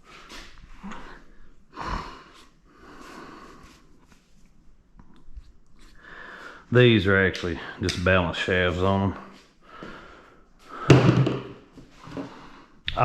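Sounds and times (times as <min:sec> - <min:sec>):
man breathing: 0:00.0 - 0:04.3, 0:05.8 - 0:06.7, 0:09.6 - 0:12.8.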